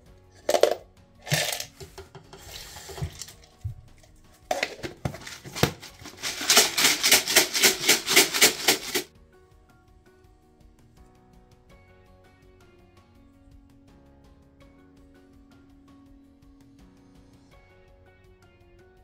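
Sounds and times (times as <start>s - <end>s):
metal parts rattling in container: 0.4s - 1.9s, 2.5s - 3.5s, 4.5s - 9.1s
metal parts clinking and scraping: 0.4s - 9.1s.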